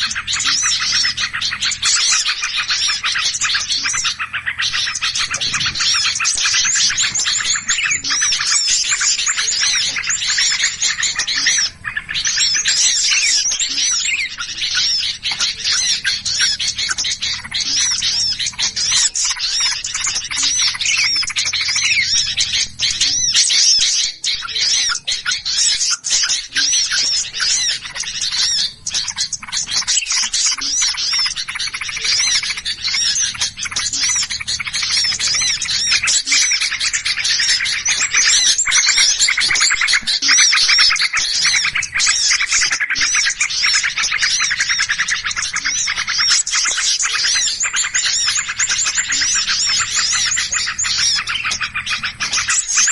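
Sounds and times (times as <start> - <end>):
songbirds chirping and scolding: 0.0 - 52.9.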